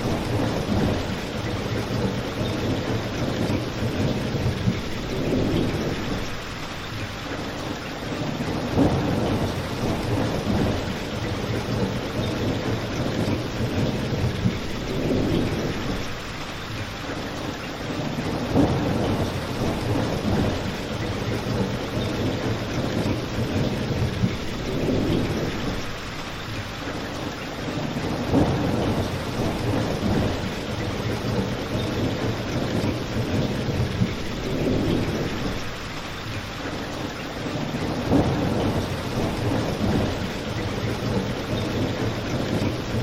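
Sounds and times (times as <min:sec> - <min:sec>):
steady rain: 0:00.0 - 0:43.0.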